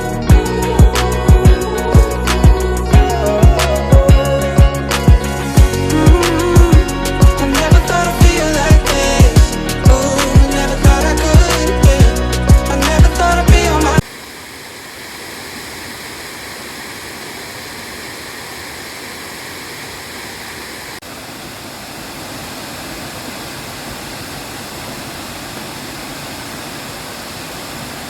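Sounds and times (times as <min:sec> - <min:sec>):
background pop music: 0:00.0 - 0:14.0
waterfall rushing: 0:13.6 - 0:28.0.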